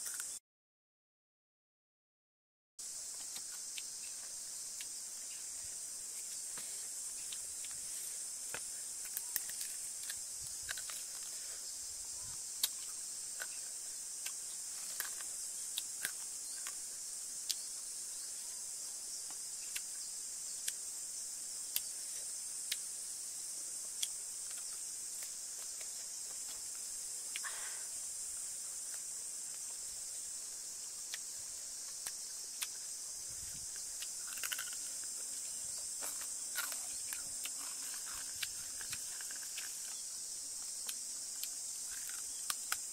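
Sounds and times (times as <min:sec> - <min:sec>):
high-pitched insect chorus: 0:02.8 - 0:42.9.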